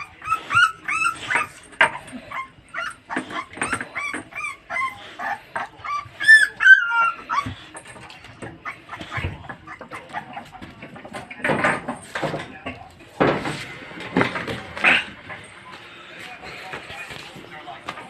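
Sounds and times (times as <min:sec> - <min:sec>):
dog whimpering and yipping: 0:00.0 - 0:07.8, 0:08.5 - 0:10.4.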